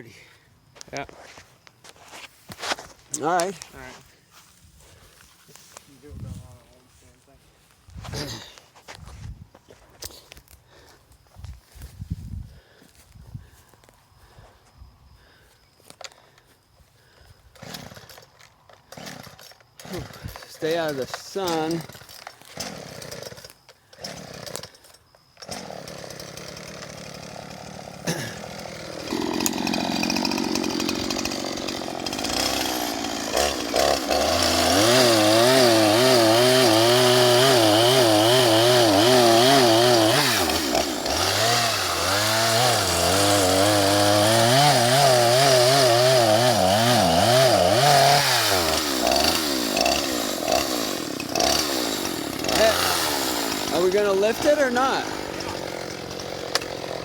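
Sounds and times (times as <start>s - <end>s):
chainsaw cutting tree trunk: 17.5s - 57.0s.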